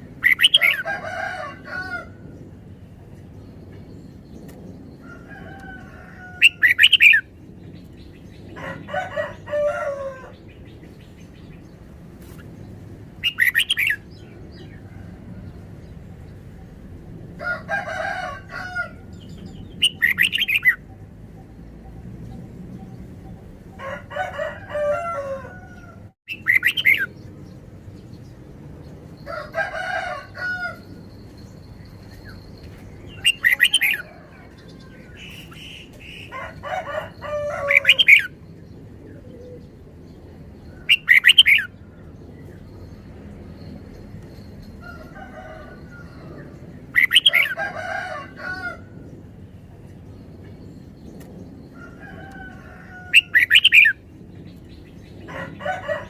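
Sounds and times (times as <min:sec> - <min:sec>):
bird whistling and chattering: 0:26.3 - 0:27.0.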